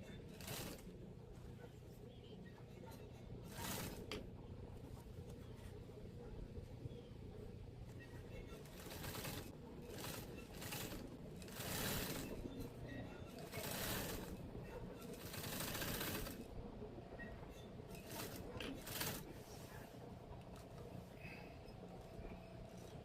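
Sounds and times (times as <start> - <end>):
sewing machine stitching: 0.0 - 0.9, 3.4 - 4.3, 8.4 - 16.5, 17.6 - 19.4.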